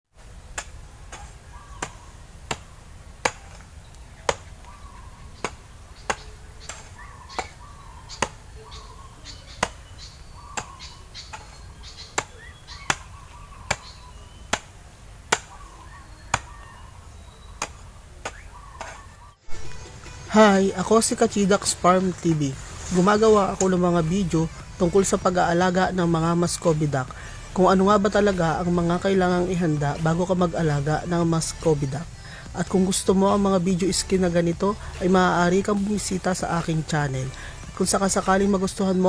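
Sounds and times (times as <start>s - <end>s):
low steady background noise: 0.1s - 39.0s
sharp chopping strikes: 0.5s - 4.6s, 5.4s - 7.6s, 8.2s - 8.4s, 9.6s - 9.9s, 10.6s - 13.1s, 13.7s - 15.6s, 17.6s - 19.8s.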